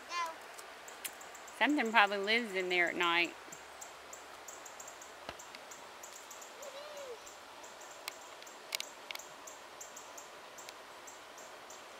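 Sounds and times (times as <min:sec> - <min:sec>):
night insects chirping: 0:03.4 - 0:11.9
rising and falling call: 0:06.5 - 0:07.4.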